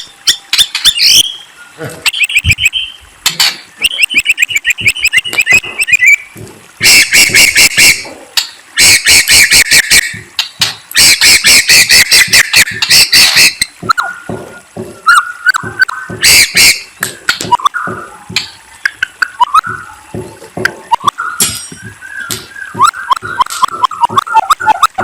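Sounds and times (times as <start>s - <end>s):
songbird singing sharp trills: 0.0s - 3.0s, 3.7s - 7.9s.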